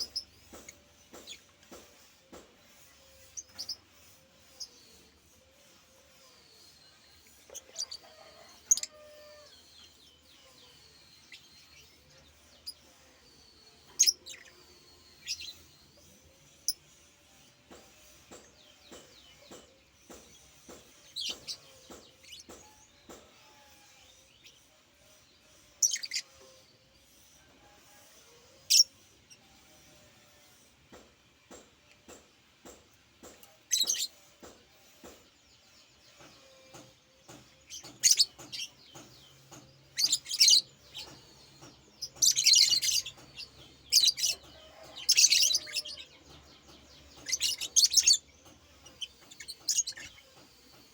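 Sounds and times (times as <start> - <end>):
bird chirping: 33.2 - 50.9.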